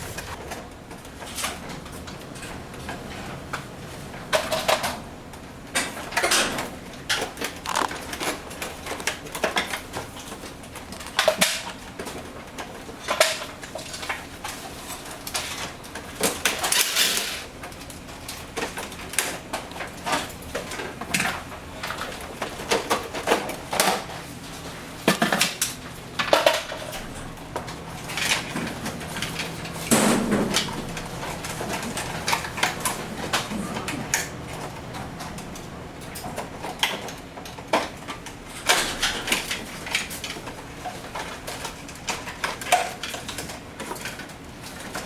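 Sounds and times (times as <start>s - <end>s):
hard parts clicking and knocking: 5.8s - 14.0s.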